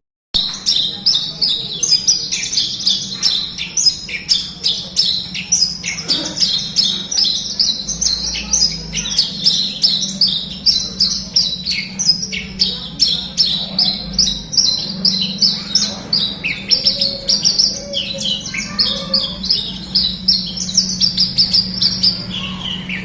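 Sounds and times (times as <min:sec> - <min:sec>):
bird song chirps and trills: 0:00.4 - 0:23.0.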